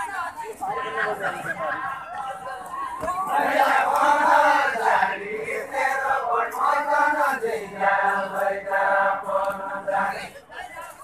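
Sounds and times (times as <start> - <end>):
men singing in unison: 3.0 - 10.6.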